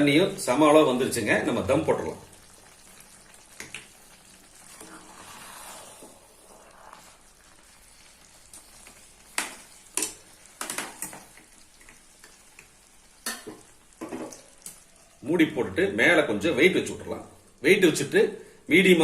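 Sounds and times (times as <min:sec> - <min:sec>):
pot cooking with faint hiss: 0:00.0 - 0:19.0
metal cookware clanks: 0:13.2 - 0:14.4.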